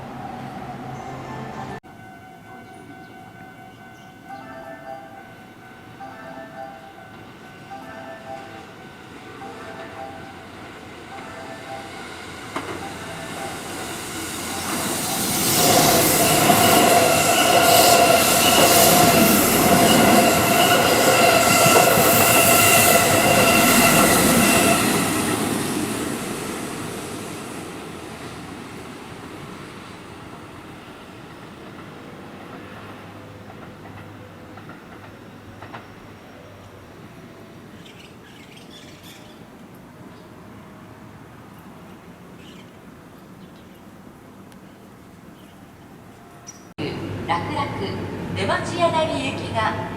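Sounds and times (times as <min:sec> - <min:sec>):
electric train passing: 0:00.0 - 0:49.9
wheels clacking over rail joints: 0:30.8 - 0:36.7.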